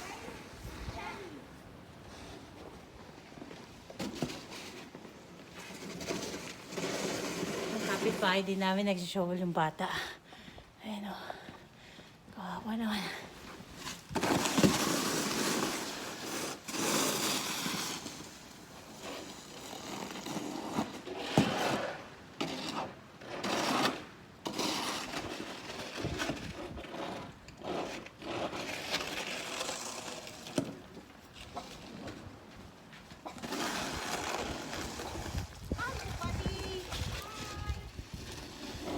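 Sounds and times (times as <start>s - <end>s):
snow shovel scraping snow: 0.0s - 1.3s, 2.0s - 8.9s, 13.4s - 38.9s.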